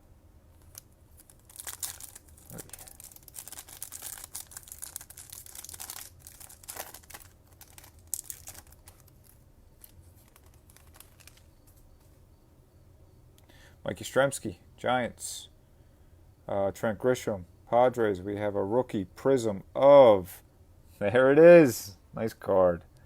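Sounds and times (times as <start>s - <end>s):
foil wrapper tearing and crinkling: 0.6s - 11.5s.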